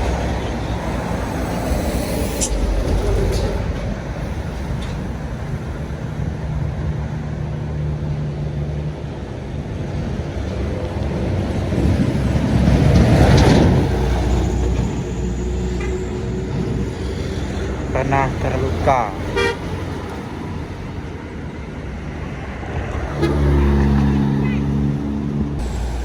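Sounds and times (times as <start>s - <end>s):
vehicle passing close: 0.0s - 7.4s
heavy vehicle engine running: 0.0s - 26.0s.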